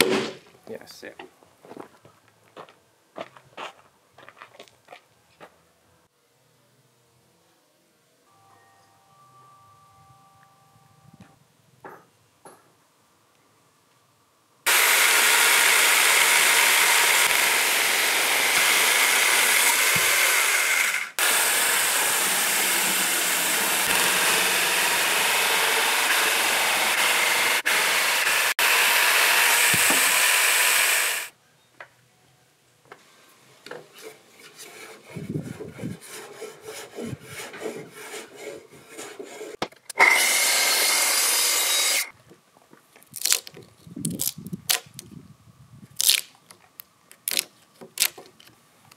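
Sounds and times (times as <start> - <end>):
track saw cutting wood: 14.7 - 31.3, 36.0 - 42.1.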